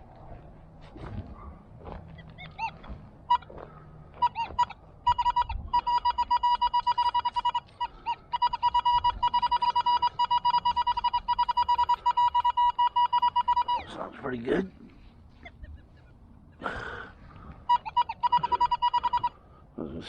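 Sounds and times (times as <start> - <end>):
metal detector beeping: 2.2 - 14.2, 17.4 - 19.4.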